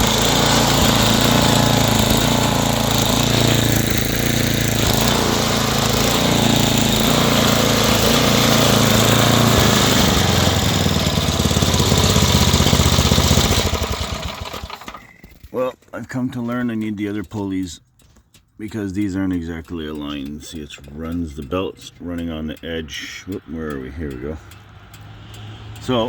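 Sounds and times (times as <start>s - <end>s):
engine spinning down: 0.0s - 15.5s
small gasoline engine running: 0.0s - 15.5s.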